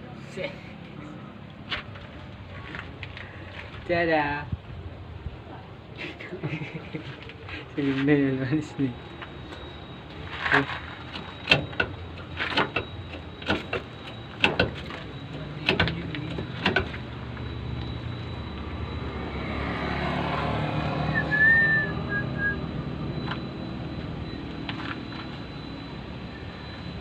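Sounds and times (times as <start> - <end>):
vehicle passing: 17.0 - 24.2.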